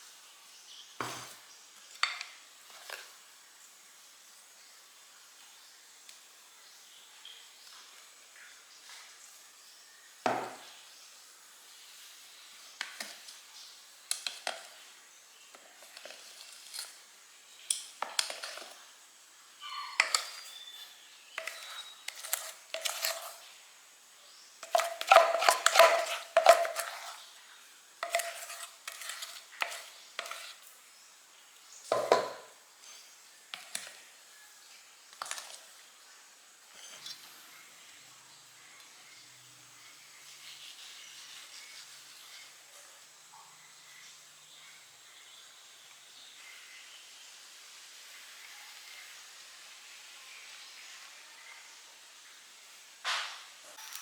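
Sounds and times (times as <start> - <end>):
utensils clinking against cookware: 19.6 - 23.4, 24.6 - 27.2, 28.0 - 30.6, 31.9 - 32.6.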